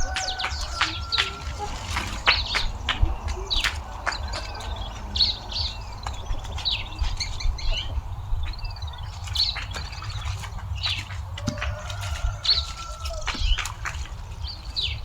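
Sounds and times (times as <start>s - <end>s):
birds chirping and calling: 0.0s - 15.0s
steady low rumble: 0.0s - 15.0s.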